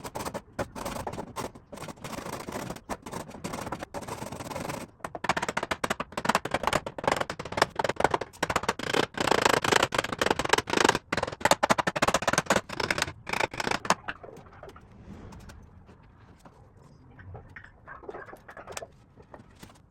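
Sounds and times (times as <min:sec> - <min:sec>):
scraping wood: 0:00.0 - 0:14.6.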